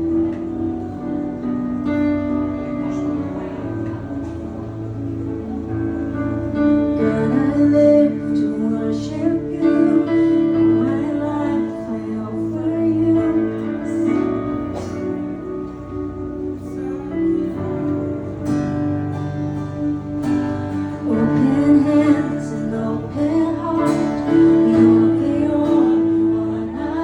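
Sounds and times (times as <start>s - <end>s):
acoustic guitar accompaniment: 0.0s - 27.0s
woman singing: 6.8s - 15.2s, 20.9s - 27.0s.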